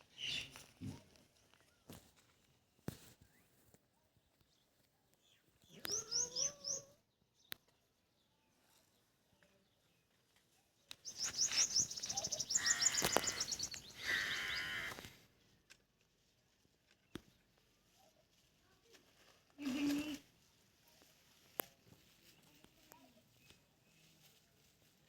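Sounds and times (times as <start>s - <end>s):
small birds chirping: 0.0s - 1.9s, 3.2s - 15.1s.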